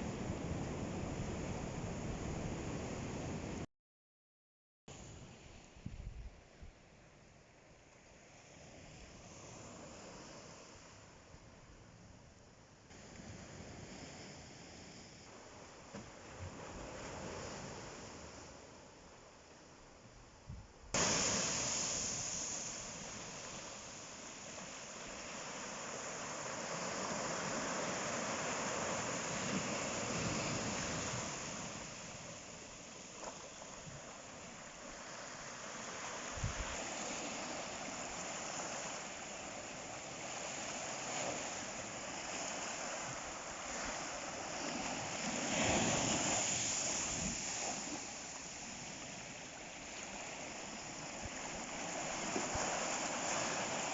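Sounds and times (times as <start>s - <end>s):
ocean surf breaking: 21.0s - 53.9s.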